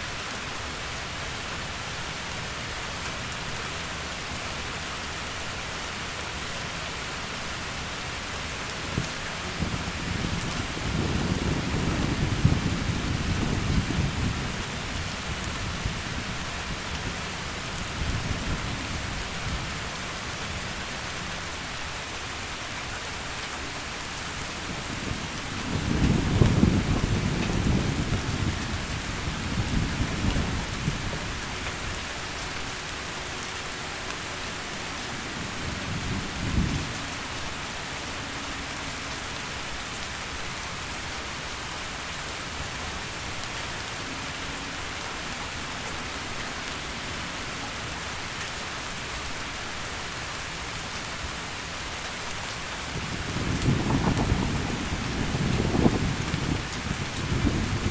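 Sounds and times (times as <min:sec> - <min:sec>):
heavy rain hiss: 0:00.0 - 0:57.9
thunder rumbling: 0:08.9 - 0:17.1, 0:24.6 - 0:31.6, 0:53.0 - 0:57.9.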